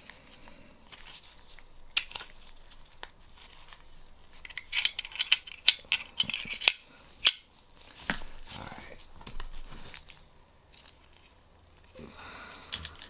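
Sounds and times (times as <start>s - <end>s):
metal gun parts clicking and clinking: 1.9s - 2.5s, 4.3s - 7.6s.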